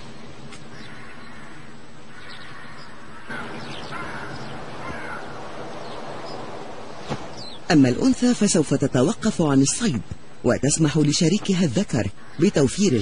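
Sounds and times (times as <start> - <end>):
birds calling: 0.0 - 13.0
outdoor background noise: 0.0 - 13.0
harsh caw-like bird calls: 0.7 - 6.6, 12.1 - 13.0.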